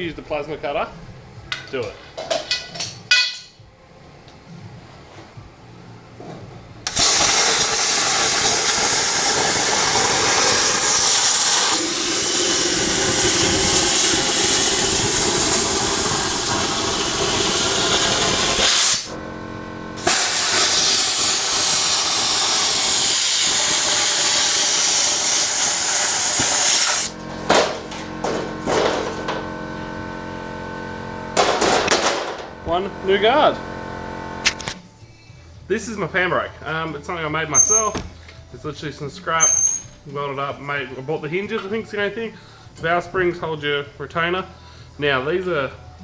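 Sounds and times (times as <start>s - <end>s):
plasma cutter hissing: 6.9s - 19.2s, 20.0s - 27.2s.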